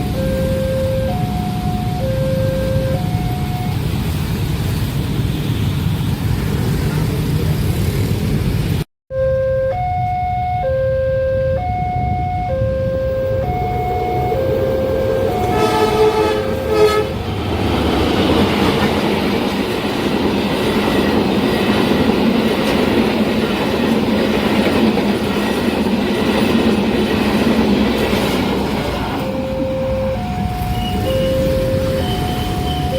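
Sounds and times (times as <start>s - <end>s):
level crossing two-tone alarm: 0.0s - 3.9s, 9.1s - 17.1s, 29.1s - 32.9s
train horn: 9.5s - 17.4s
train wheels rumbling on rails: 13.4s - 32.9s.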